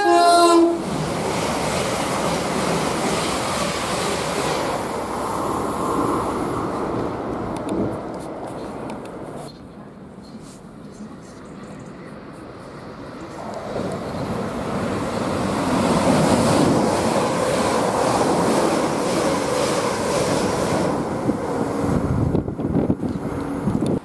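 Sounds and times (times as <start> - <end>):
train wheels rushing on rails: 0.0 - 9.4, 12.2 - 24.0
wind buffeting microphone: 13.3 - 24.0.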